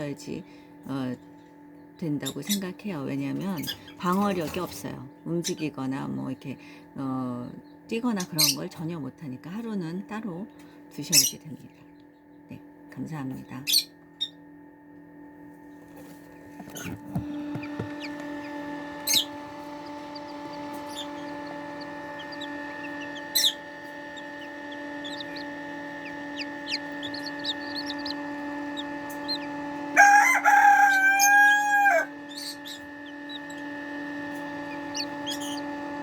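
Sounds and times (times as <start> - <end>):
steady hum: 0.0 - 36.0
chicks peeping: 15.7 - 36.0
rooster crowing: 17.4 - 33.8.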